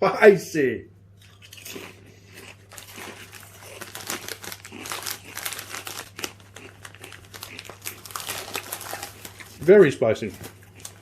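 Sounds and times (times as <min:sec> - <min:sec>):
crisp packet crinkling: 0:02.7 - 0:11.0.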